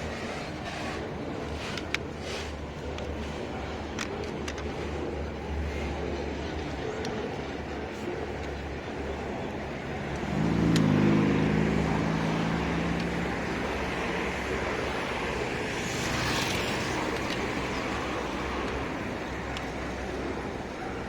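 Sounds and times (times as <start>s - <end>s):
diesel locomotive rumbling: 4.6s - 21.0s.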